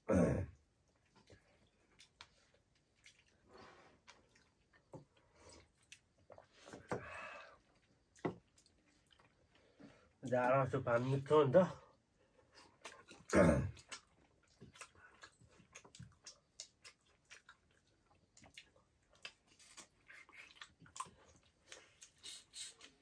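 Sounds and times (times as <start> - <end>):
wet chewing: 0.8 - 6.9, 12.3 - 23.0.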